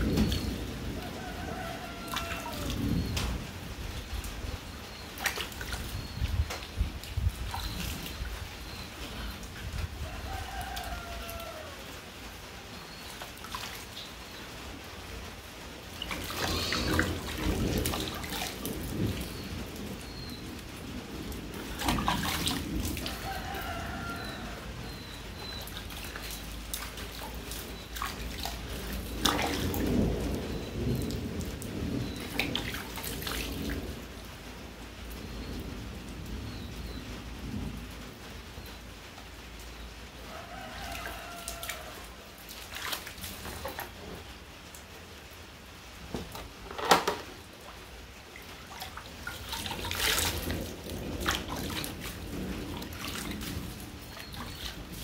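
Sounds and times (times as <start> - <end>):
water splashes and knocks: 0.0 - 9.9, 13.0 - 14.2, 15.8 - 34.2, 40.6 - 44.9, 46.0 - 55.0
rain falling: 0.0 - 55.0.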